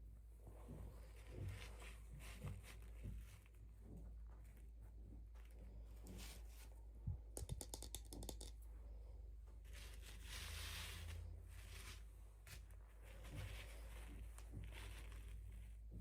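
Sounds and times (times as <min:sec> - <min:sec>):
small clicks and taps: 0:07.1 - 0:08.7.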